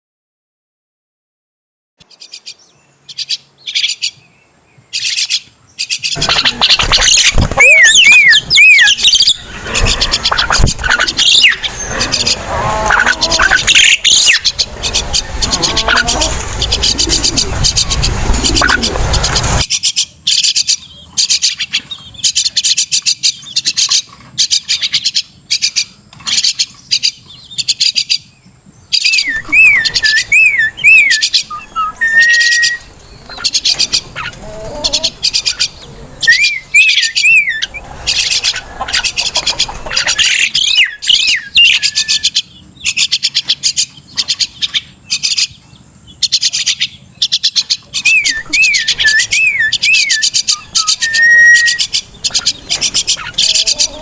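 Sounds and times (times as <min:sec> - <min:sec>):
bird harsh chattering: 0:05.0 - 0:27.1, 0:29.0 - 0:45.5, 0:46.2 - 0:54.0
bird whistled phrases: 0:06.1 - 0:12.3, 0:29.0 - 0:33.7, 0:34.8 - 0:39.2, 0:40.1 - 0:42.4, 0:48.0 - 0:54.0.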